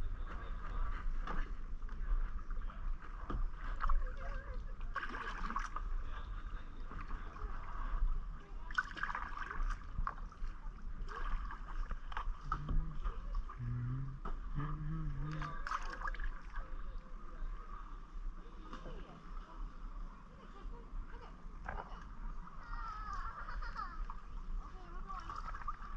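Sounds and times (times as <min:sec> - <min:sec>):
paddle splashing in water: 0:00.3 - 0:17.0, 0:25.1 - 0:25.9
steady low rumble: 0:09.6 - 0:22.6.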